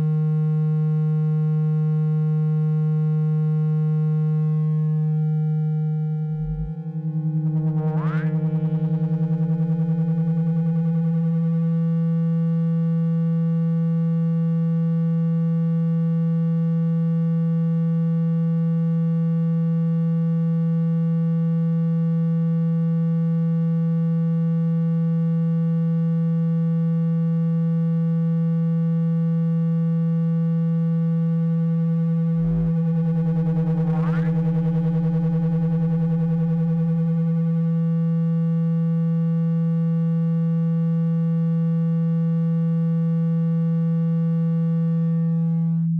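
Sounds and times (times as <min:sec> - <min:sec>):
low electronic tone: 0:02.9 - 0:13.1, 0:30.9 - 0:39.3, 0:42.4 - 0:45.9.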